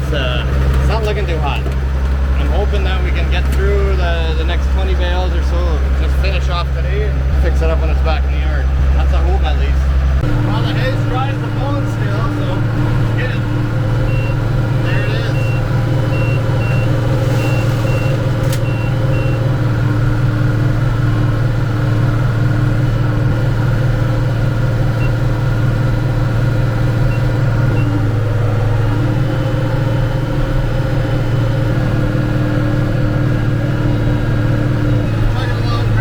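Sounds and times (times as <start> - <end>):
tractor engine running: 0.0 - 36.0
monitor beeping: 13.4 - 19.4.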